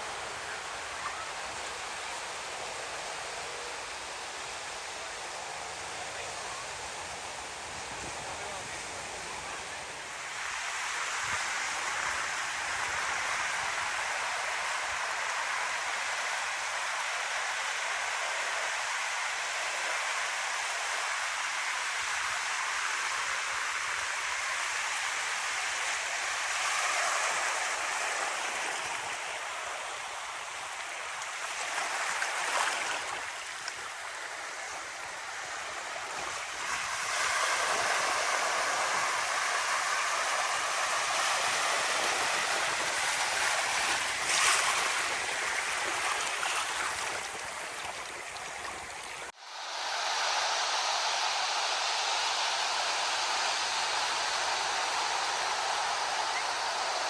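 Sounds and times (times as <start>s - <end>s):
surf breaking on beach: 23.1s - 49.4s.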